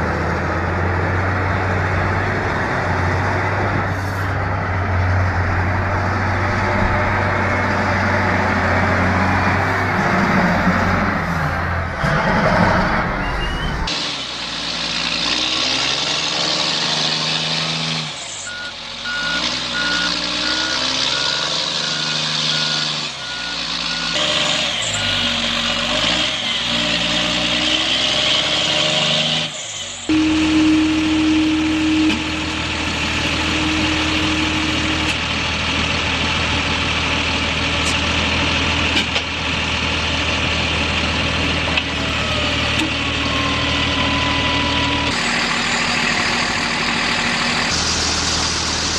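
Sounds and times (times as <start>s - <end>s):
heavy vehicle engines running: 0.0s - 48.9s
reversing alarm beeping: 18.5s - 25.4s, 30.1s - 35.2s, 43.1s - 45.2s.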